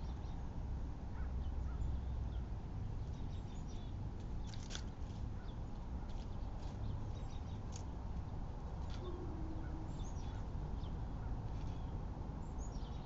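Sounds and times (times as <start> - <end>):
bird calls and chirps: 1.2 - 4.7, 5.4 - 13.0.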